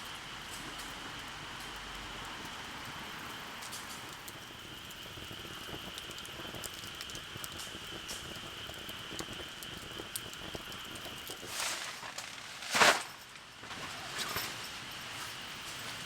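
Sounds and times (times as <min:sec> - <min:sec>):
light rain pattering: 0:00.0 - 0:12.3.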